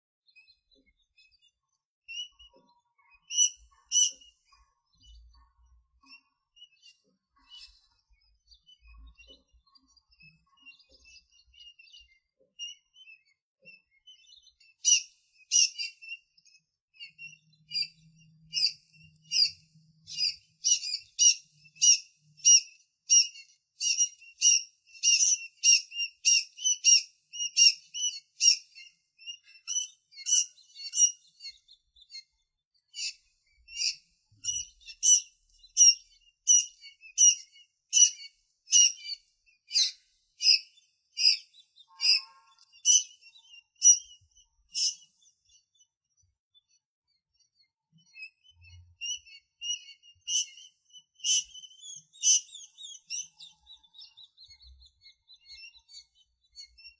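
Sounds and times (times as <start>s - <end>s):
tiny birds chirping: 0.0s - 56.9s.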